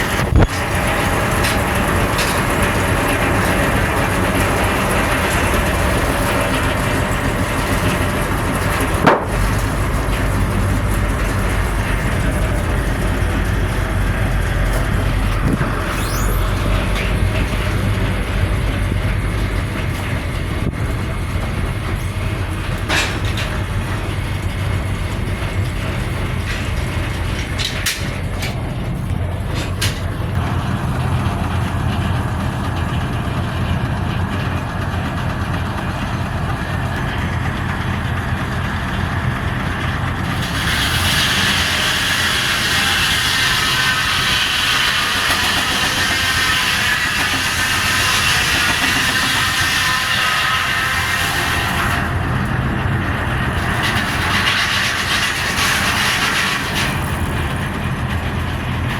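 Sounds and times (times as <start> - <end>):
sawmill machinery drone: 0.0 - 58.9
sharp knocks: 9.0 - 9.6.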